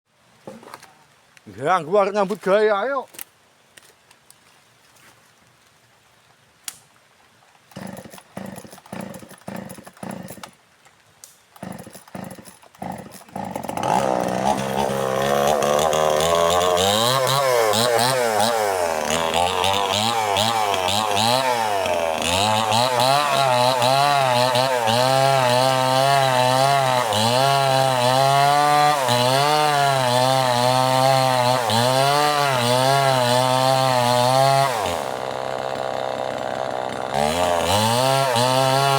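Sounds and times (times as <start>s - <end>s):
chainsaw engine sputtering and running: 7.7s - 10.4s, 11.6s - 38.9s.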